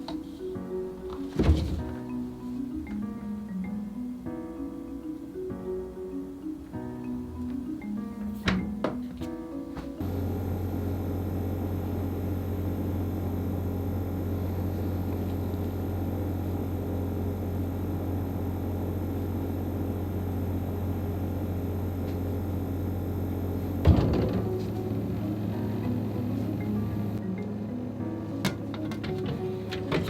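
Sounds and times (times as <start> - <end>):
refrigerator humming: 10.0 - 27.2.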